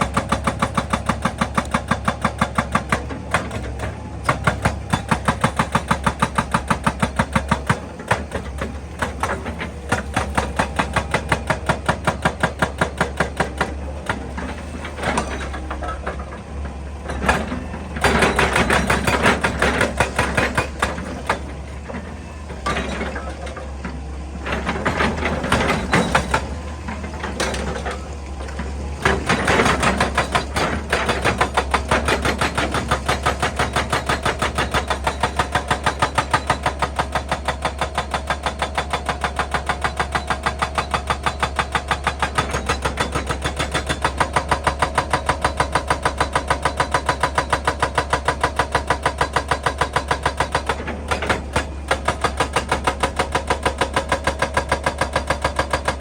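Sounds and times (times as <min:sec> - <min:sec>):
hydraulic breaker hammering rock: 0:00.0 - 0:56.0.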